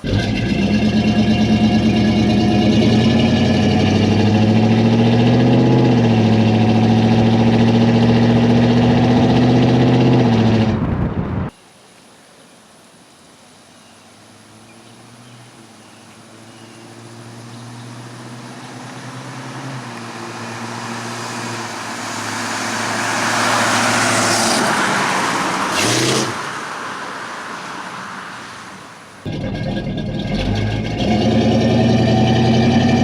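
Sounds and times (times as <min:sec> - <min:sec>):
road noise: 0:00.0 - 0:33.0
car engine driving past: 0:16.2 - 0:33.0.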